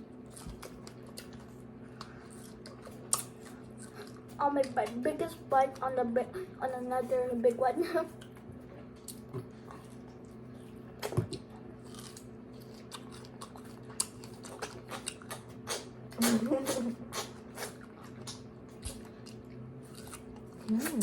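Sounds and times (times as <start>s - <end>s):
chewing with wet mouth clicks: 0.3s - 5.0s, 9.0s - 21.0s.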